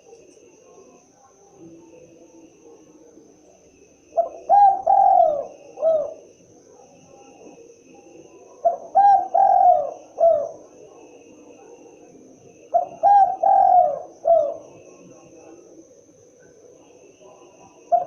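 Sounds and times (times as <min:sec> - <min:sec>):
dove cooing: 0:04.0 - 0:12.0, 0:12.6 - 0:15.8, 0:16.5 - 0:18.0.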